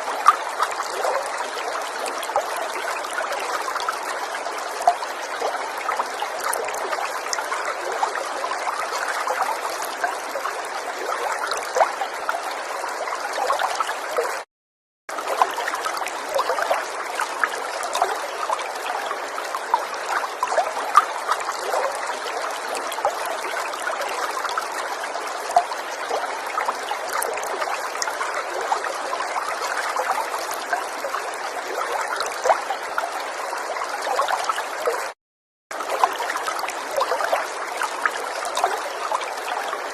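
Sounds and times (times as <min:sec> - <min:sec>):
river water flowing over stones: 0:00.0 - 0:14.4, 0:15.1 - 0:39.9.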